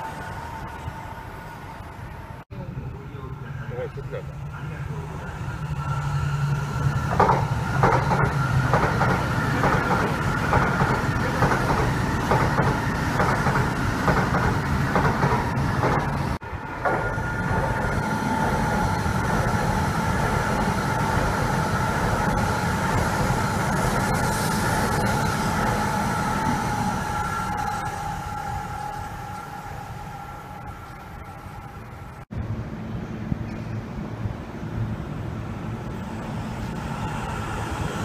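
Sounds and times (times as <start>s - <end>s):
train passing with high whine: 0.0s - 38.0s
train wheels clicking over rail joints: 6.4s - 27.3s.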